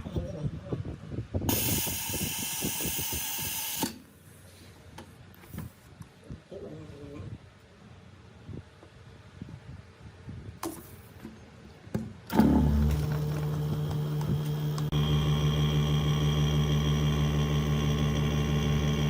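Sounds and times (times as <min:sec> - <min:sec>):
electric machine humming: 0:12.3 - 0:19.0.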